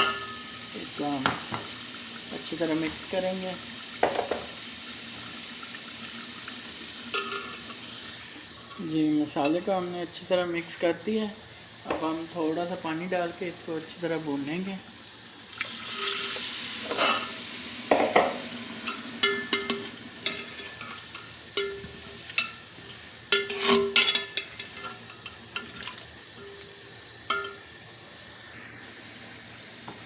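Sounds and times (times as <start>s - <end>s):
spoon clinking and scraping pot: 0.0s - 0.6s, 7.1s - 7.7s, 16.9s - 17.3s, 17.9s - 25.8s, 26.4s - 27.6s
chicken sizzling in hot oil: 0.0s - 30.0s.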